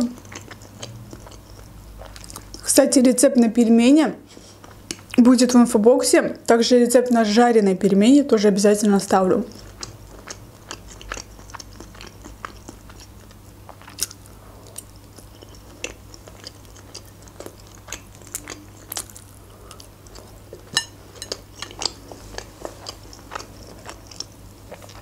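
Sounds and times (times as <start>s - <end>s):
person chewing with wet smacks: 0.0s - 2.7s, 4.6s - 5.2s, 9.4s - 25.0s.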